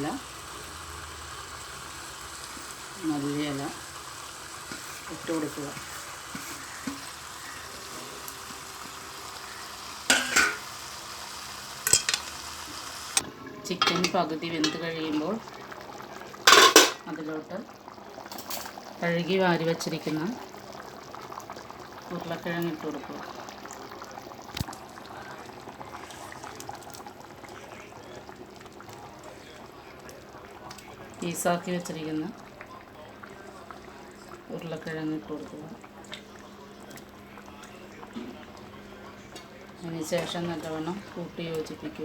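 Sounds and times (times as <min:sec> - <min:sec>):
curry sizzling in a wok: 0:00.0 - 0:30.0
spoon scraping a pan: 0:04.6 - 0:09.0, 0:10.0 - 0:10.7, 0:11.8 - 0:12.5.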